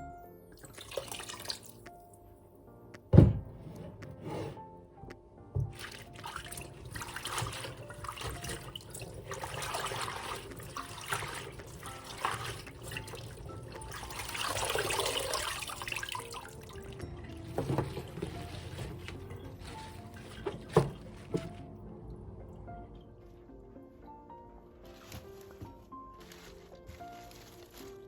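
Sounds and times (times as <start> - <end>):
soft background music: 0.0 - 28.0
water running and splashing: 0.6 - 1.8, 5.7 - 21.7.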